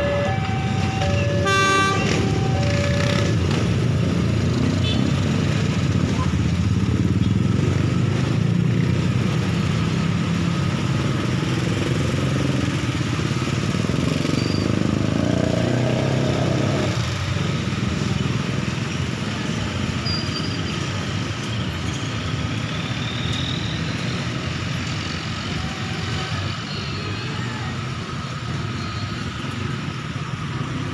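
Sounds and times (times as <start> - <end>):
diesel train engine hum: 0.0 - 11.6.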